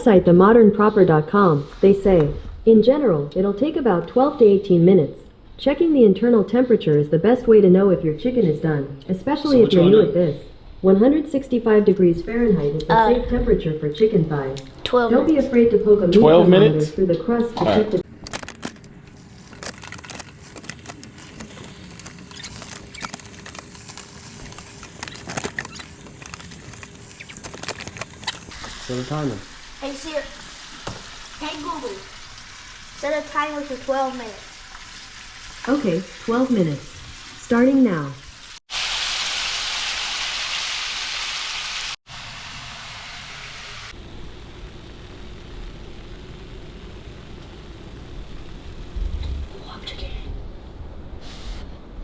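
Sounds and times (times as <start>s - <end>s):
chicken frying in hot oil: 19.2s - 37.3s, 38.2s - 49.4s.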